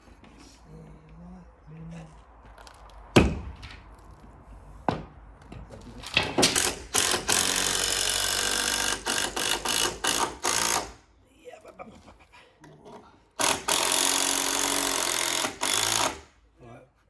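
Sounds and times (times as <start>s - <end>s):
breaker hammer chiselling concrete: 6.2s - 10.9s, 13.4s - 16.2s.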